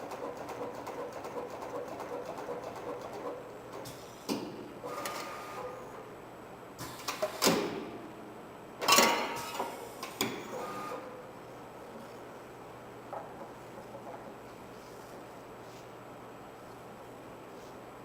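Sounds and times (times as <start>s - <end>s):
faint machine whines: 4.8s - 6.3s, 8.9s - 12.2s.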